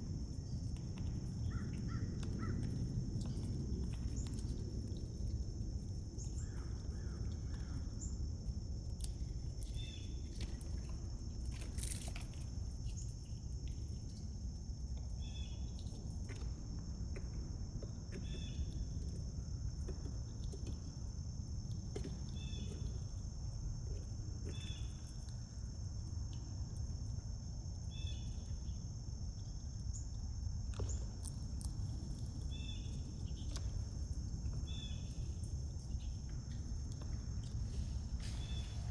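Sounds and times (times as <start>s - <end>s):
high insect drone: 34.6s - 38.9s
low rumble: 37.0s - 38.9s.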